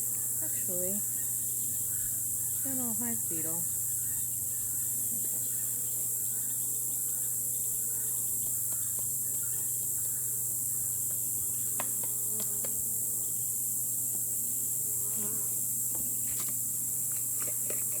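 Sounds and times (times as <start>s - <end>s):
bees buzzing: 0.0s - 17.1s.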